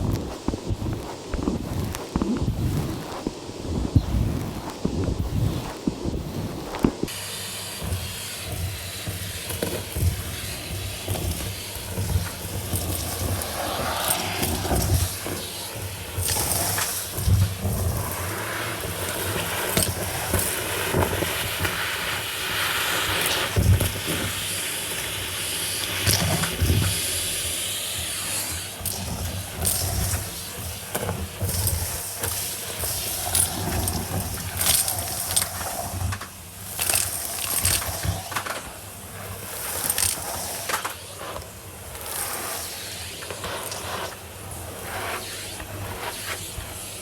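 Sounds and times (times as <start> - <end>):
debris rattling up hose: 0.0 - 18.3, 28.8 - 43.9
vacuum cleaner running: 0.0 - 47.0.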